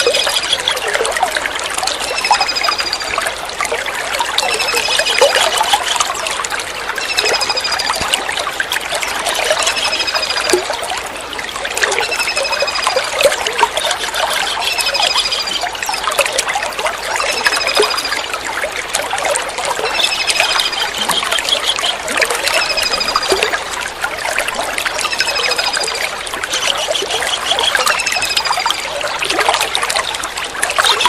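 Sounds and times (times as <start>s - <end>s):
trickling water: 0.0s - 31.0s
kingfisher rattling trill: 12.0s - 16.2s, 19.7s - 23.6s, 25.0s - 28.8s.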